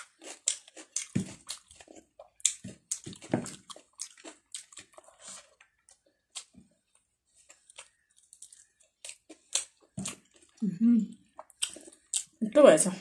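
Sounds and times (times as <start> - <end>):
wet chewing and lip-smacking: 0.0 - 12.4.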